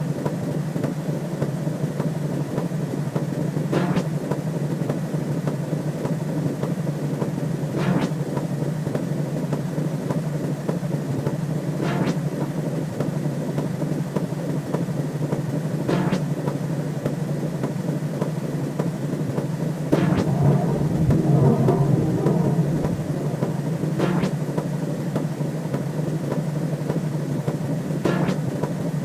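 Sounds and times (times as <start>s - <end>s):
synthesized low hum: 11.8s - 12.4s, 19.6s - 26.3s
short swish: 19.9s - 24.8s.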